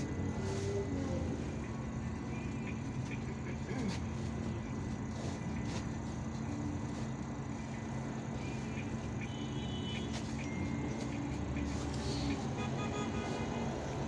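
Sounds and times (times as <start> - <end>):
bus engine drone: 0.0 - 14.0
road noise: 0.0 - 14.0.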